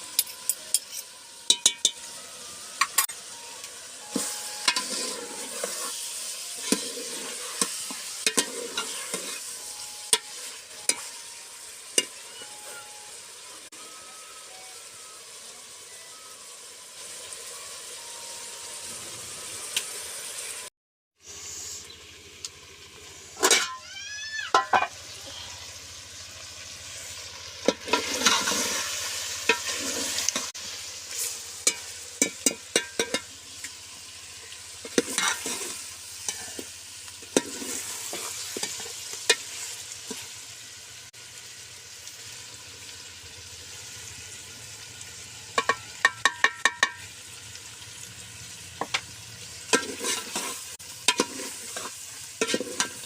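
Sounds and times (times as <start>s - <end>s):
food sizzling in hot oil: 0.0s - 53.0s
spoon stirring and scraping pot: 4.1s - 11.1s, 27.7s - 30.5s, 31.1s - 33.3s, 34.8s - 40.2s, 49.7s - 53.0s.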